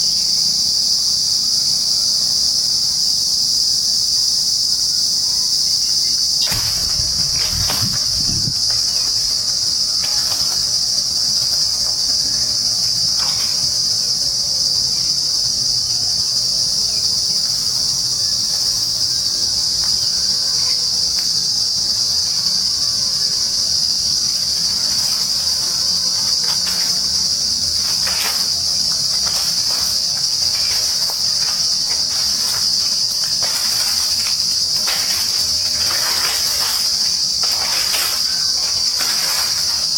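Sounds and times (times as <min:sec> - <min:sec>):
insect chorus drone: 0:00.0 - 0:39.9.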